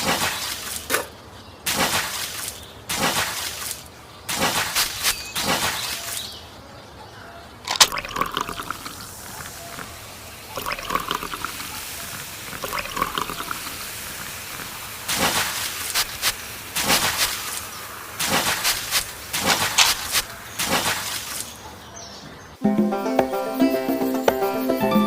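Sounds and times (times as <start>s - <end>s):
water pouring and splashing: 0.0s - 1.1s, 1.7s - 6.3s, 7.7s - 21.6s.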